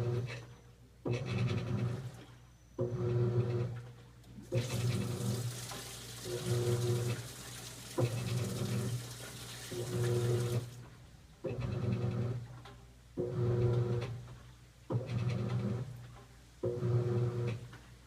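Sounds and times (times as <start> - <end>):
washing machine motor humming: 0.0 - 0.3, 1.1 - 2.2, 2.8 - 3.8, 4.4 - 12.5, 13.2 - 14.2, 16.6 - 17.7
water sloshing in tub: 4.3 - 10.9.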